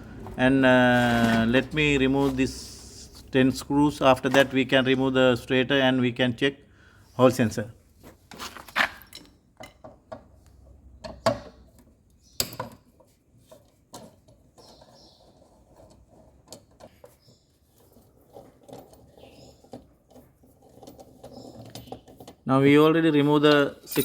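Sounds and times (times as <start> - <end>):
loose screws clinking: 23.5 - 24.0.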